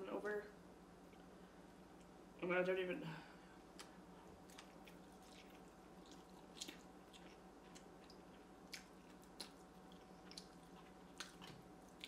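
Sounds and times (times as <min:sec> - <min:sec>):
person chewing noodles: 0:03.6 - 0:12.0.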